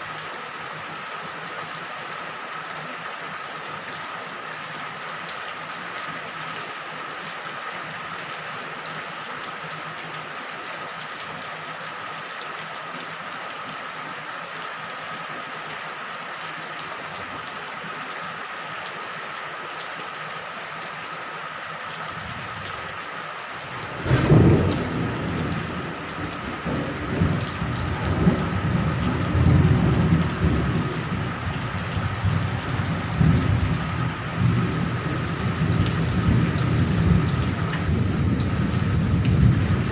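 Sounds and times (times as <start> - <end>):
steady rain falling: 0.0 - 39.9
thunder crack and rumbling: 23.8 - 39.9.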